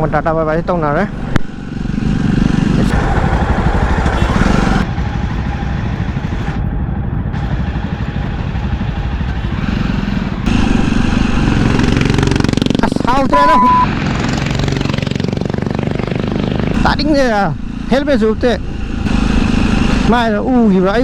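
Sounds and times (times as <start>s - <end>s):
road and wind noise: 0.0s - 21.0s
motorcycle engine rumble: 0.7s - 6.3s, 10.2s - 21.0s.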